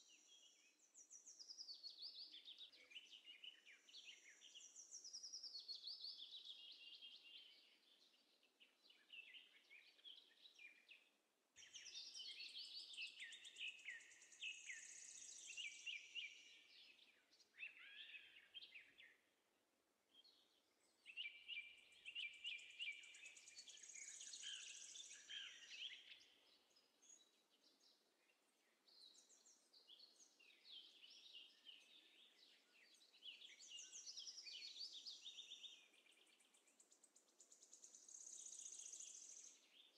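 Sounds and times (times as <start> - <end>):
birds chirping and twittering: 0.0 - 19.4, 20.1 - 39.9.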